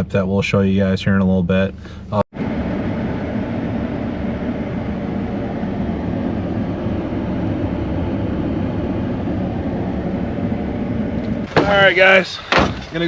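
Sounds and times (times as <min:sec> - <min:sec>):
truck engine and road rumble: 0:00.0 - 0:13.0.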